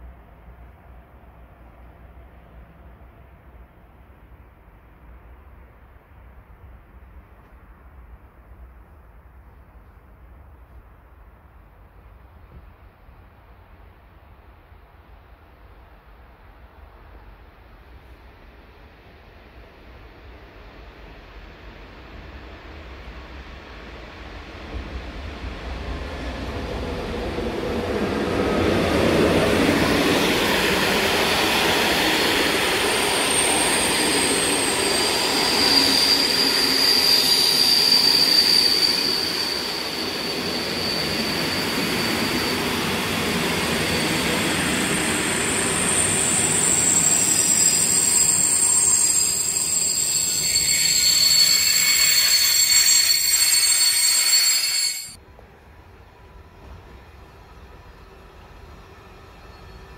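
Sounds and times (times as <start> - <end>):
rumble of passing train cars: 0.0 - 59.9
train wheels squealing: 26.1 - 55.2, 56.4 - 59.9.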